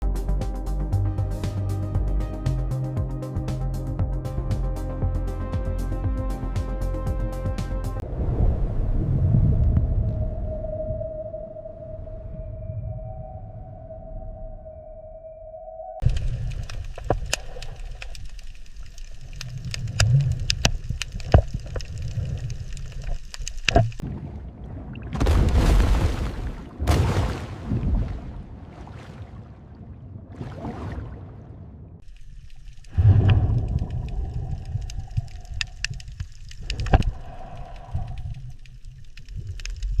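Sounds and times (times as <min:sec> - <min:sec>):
low underwater rumble: 0:04.0 - 0:15.1, 0:27.6 - 0:40.0
sharp underwater clicks and crackles: 0:16.0 - 0:24.0, 0:32.0 - 0:40.0.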